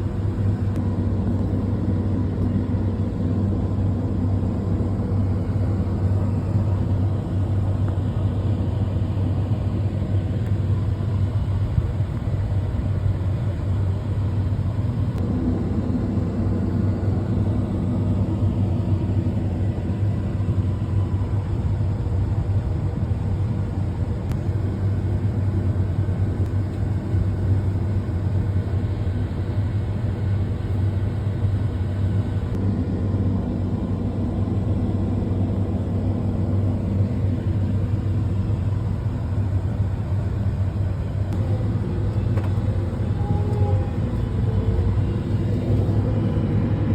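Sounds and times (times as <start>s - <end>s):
tractor diesel engine running: 34.8s - 46.9s.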